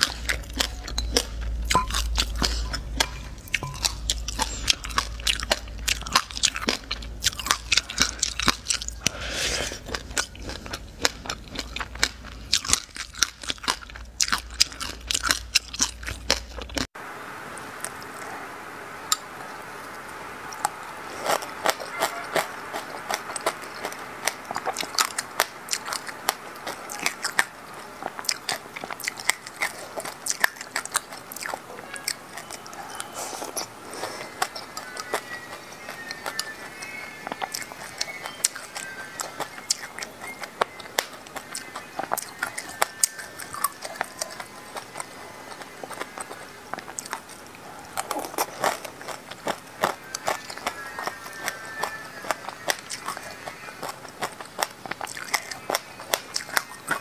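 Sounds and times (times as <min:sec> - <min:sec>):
chewing and crunching seeds: 0:00.0 - 0:16.9, 0:19.0 - 0:57.0
low hum: 0:00.0 - 0:28.8.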